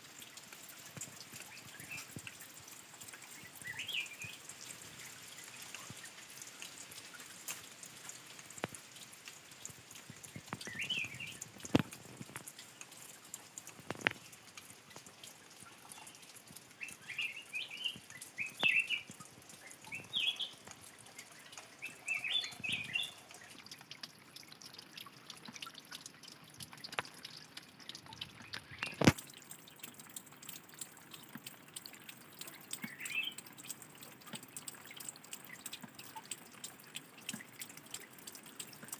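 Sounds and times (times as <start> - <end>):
water dripping and splashing: 0.0 - 38.9
birds chirping: 3.3 - 4.5, 10.1 - 11.4, 16.8 - 23.6, 32.6 - 33.4.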